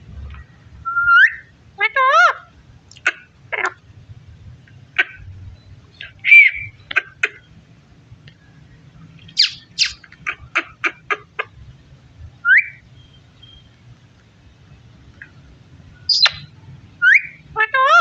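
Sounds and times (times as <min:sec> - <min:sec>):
parakeet squawking: 0:01.0 - 0:03.8, 0:05.0 - 0:05.2, 0:06.0 - 0:07.5, 0:09.2 - 0:11.5, 0:16.0 - 0:18.0.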